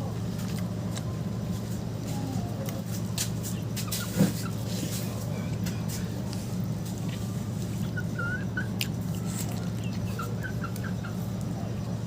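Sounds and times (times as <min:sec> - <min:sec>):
high bird chirps: 0:07.8 - 0:11.9.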